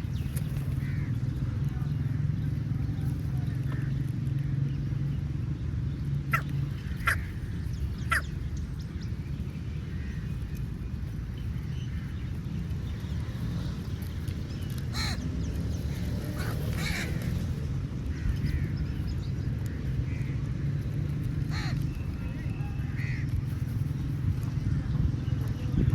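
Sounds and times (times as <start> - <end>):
steady low rumble: 0.0 - 25.9
crows cawing: 0.8 - 1.2, 6.3 - 8.3, 14.9 - 15.3, 16.3 - 17.5, 21.4 - 21.9, 22.9 - 23.3.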